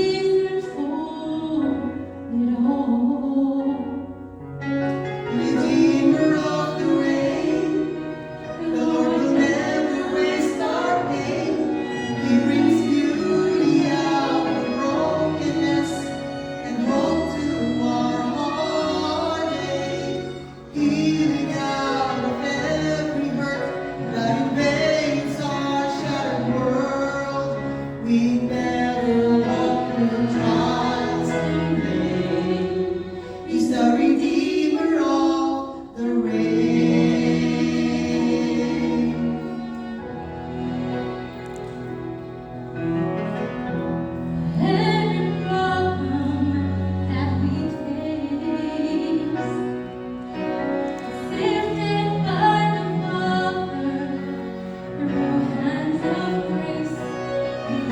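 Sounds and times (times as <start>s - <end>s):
choir singing gospel song: 4.8s - 41.3s, 44.3s - 57.9s.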